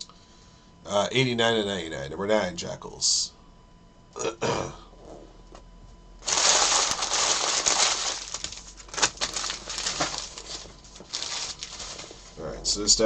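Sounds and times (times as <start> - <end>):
card wrappers crinkling: 6.2 - 12.4.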